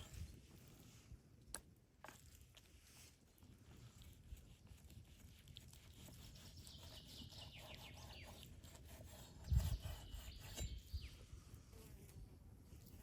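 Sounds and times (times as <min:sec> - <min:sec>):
small birds chirping: 0:05.6 - 0:11.4.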